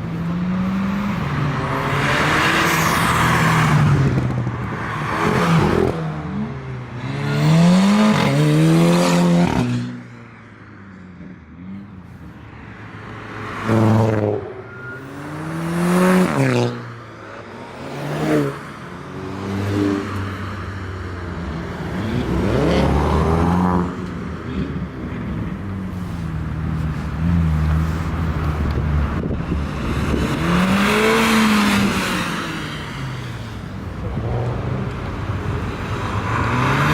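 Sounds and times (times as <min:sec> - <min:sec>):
cars accelerating past: 0:21.5 - 0:25.6, 0:26.6 - 0:36.9.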